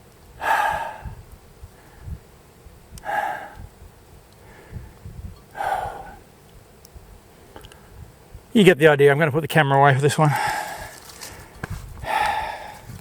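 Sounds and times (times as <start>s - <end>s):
person breathing hard: 0.4s - 1.2s, 3.0s - 3.7s, 4.4s - 6.2s, 10.3s - 13.0s
low thuds of footsteps: 10.4s - 13.0s.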